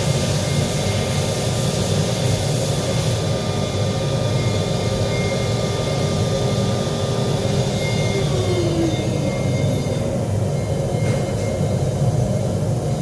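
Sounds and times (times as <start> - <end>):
mechanical drone with hum: 0.0 - 13.0
faint whining tones: 4.4 - 11.8.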